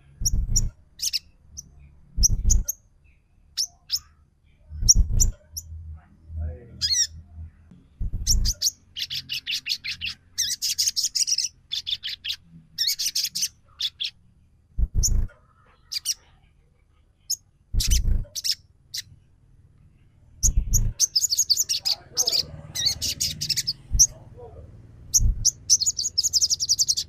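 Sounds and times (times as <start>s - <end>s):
jay chattering calls: 17.8s - 19.0s, 20.4s - 27.0s.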